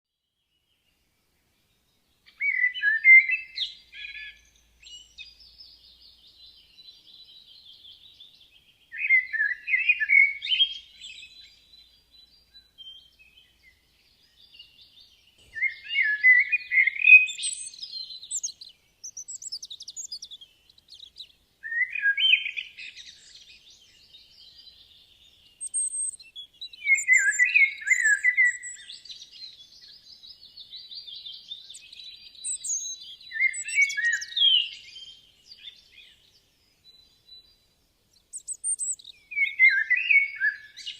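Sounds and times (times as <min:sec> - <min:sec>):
songbird singing loud phrases: 0:00.2 - 0:40.9
birds twittering: 0:01.8 - 0:40.9.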